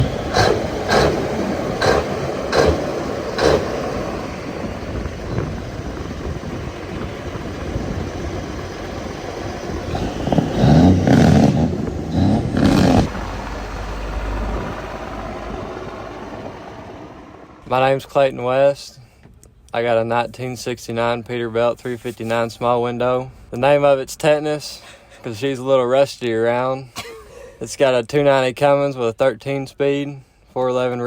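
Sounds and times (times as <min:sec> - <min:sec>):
diesel truck engine running: 0:00.0 - 0:18.0.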